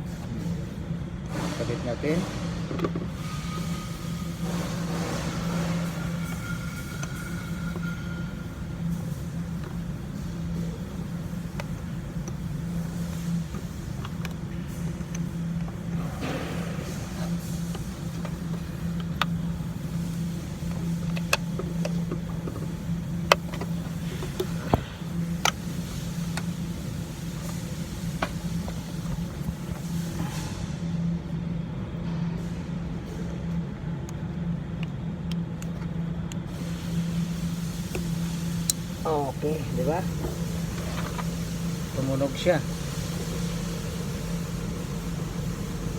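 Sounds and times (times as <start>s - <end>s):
idling vehicle engine hum: 35.5s - 45.9s.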